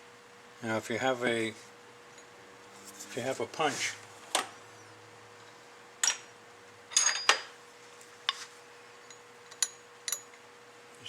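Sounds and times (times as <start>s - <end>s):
metal parts clinking on metal: 6.9s - 7.5s.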